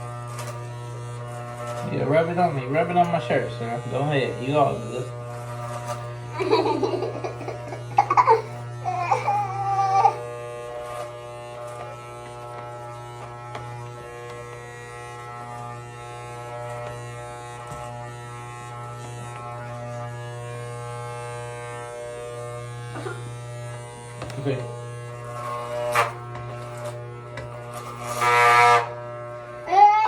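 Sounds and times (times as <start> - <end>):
electric hair clippers buzzing: 0.0 - 30.0
child's wavering voice: 7.2 - 10.2, 29.6 - 30.0.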